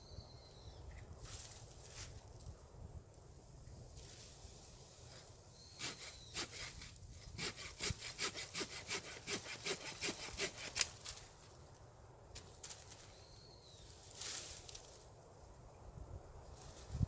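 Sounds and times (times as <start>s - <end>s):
hand saw cutting wood: 5.8s - 11.0s.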